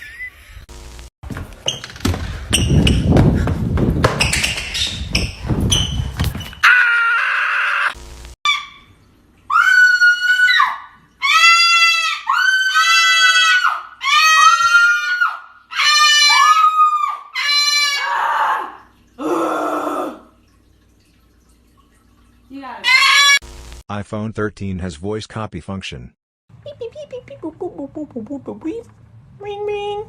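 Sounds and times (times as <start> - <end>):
bird screaming harshly: 9.5 - 18.6, 22.8 - 23.4.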